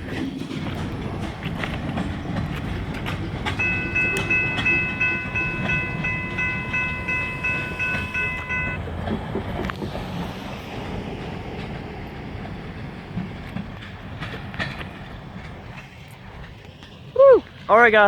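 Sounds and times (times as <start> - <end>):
freight train rumbling past: 0.0 - 18.0
wheels clacking over rail joints: 0.0 - 18.0
crossing bell dinging rapidly: 0.8 - 9.0.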